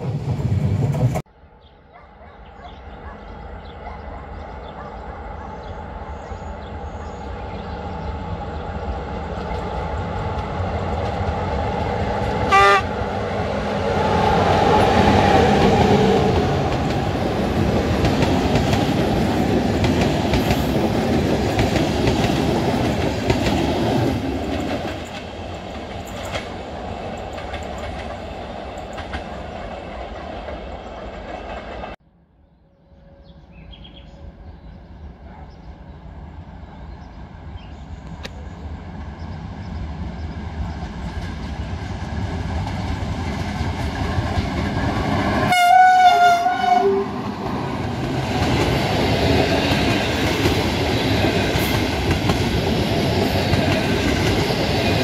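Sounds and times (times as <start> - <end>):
distant train: 0.0 - 55.0
train horn blast: 12.4 - 13.0, 45.4 - 47.3
train wheels clattering on rails: 14.4 - 32.0, 47.4 - 55.0.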